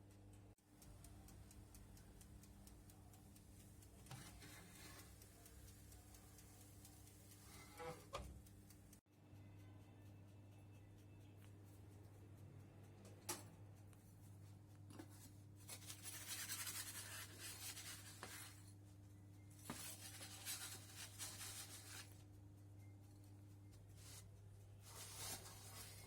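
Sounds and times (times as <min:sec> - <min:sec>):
rubbing and scraping: 0:15.0 - 0:18.7, 0:19.7 - 0:22.2, 0:24.8 - 0:26.0.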